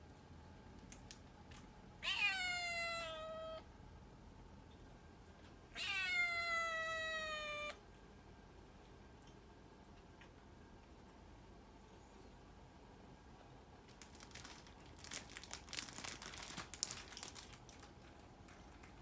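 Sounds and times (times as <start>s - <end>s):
cat meowing: 2.0s - 3.6s, 5.7s - 7.8s.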